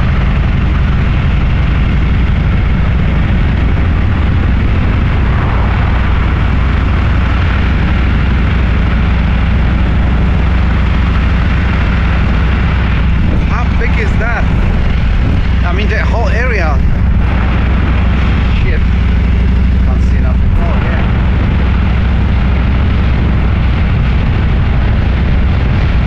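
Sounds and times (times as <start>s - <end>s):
motorcycle engine running: 0.0s - 26.0s
wind rush over microphone: 0.0s - 26.0s.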